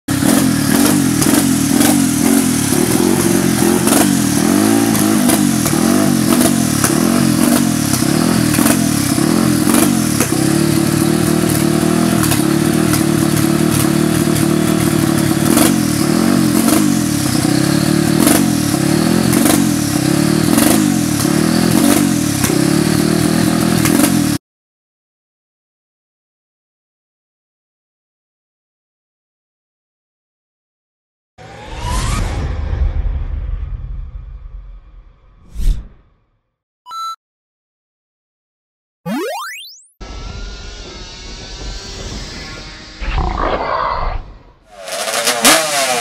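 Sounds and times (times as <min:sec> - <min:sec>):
high-revving atv engines: 0:00.1 - 0:24.4, 0:44.7 - 0:46.0.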